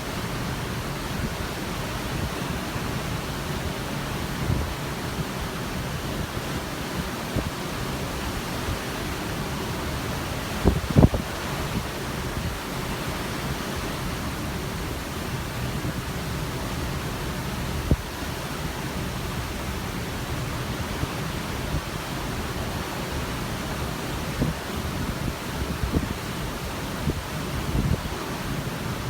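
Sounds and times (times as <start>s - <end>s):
open sea rushing: 0.0s - 29.0s
wind gusting on microphone: 0.3s - 16.8s, 17.6s - 29.0s.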